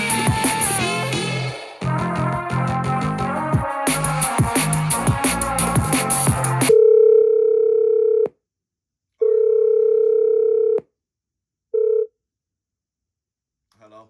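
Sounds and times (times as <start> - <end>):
music: 0.0 - 6.7.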